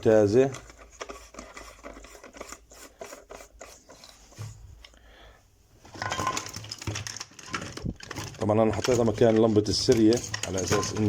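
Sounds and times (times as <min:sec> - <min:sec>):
handling noises rubbing and scraping: 0:00.0 - 0:04.9, 0:05.8 - 0:11.0.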